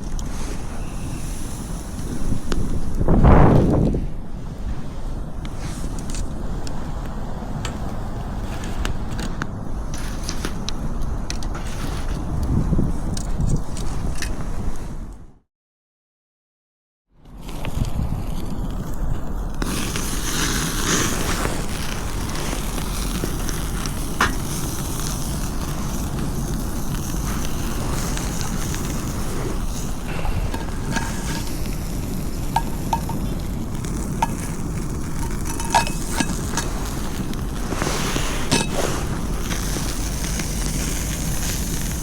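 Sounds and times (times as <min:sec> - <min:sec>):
wind rumbling on microphone: 0:00.0 - 0:15.4, 0:17.2 - 0:42.0
food sizzling in a pan: 0:19.7 - 0:42.0.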